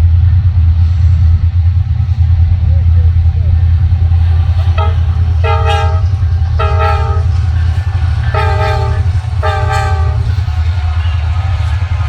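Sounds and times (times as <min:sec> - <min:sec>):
train rumble: 0:00.0 - 0:12.0
locomotive air horn: 0:04.6 - 0:10.7.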